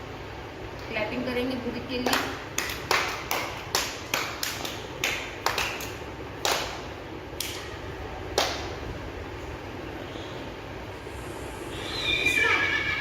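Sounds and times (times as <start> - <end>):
children clapping: 2.0 - 7.7, 8.3 - 8.8.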